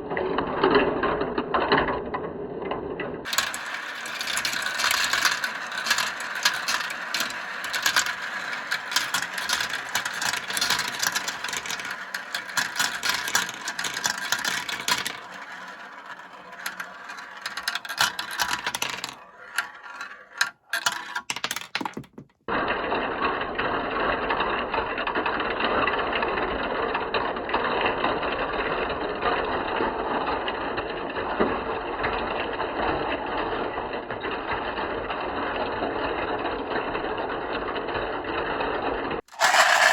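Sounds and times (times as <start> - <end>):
marbles rattling down plastic run: 3.3 - 22.4, 39.3 - 39.9.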